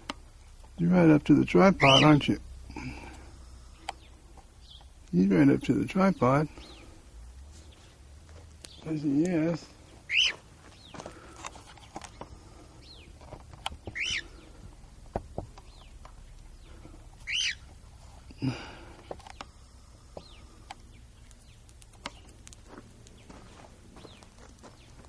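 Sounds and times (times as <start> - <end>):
cockatiel chirping: 1.8 - 2.1, 10.1 - 10.4, 13.9 - 14.4, 17.2 - 17.7.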